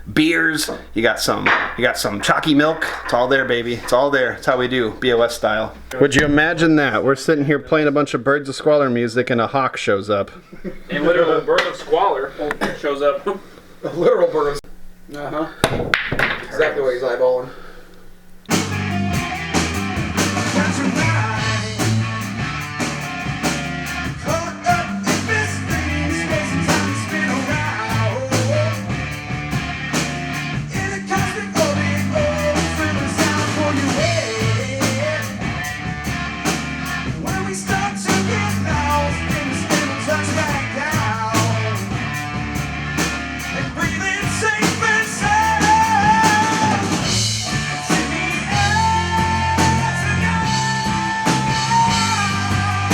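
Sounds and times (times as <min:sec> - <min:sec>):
pitch-bending lead guitar line: 0:18.5 - 0:52.9
rock band playing: 0:18.5 - 0:52.9.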